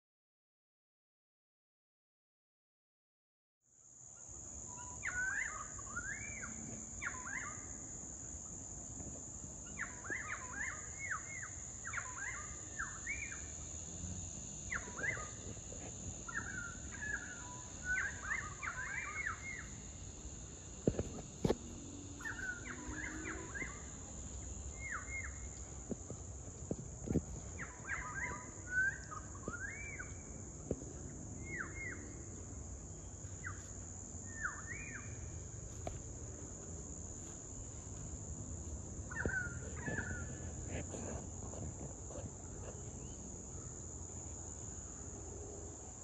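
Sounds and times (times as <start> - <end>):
high-pitched drone: 9.9 - 26.2
birds chirping and whistling: 27.6 - 30.1, 39.1 - 40.4.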